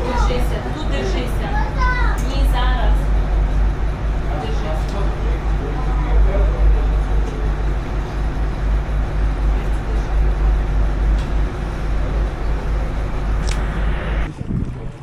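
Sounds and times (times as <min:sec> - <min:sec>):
boat engine rumble: 0:00.0 - 0:15.0
wind buffeting microphone: 0:10.4 - 0:15.0.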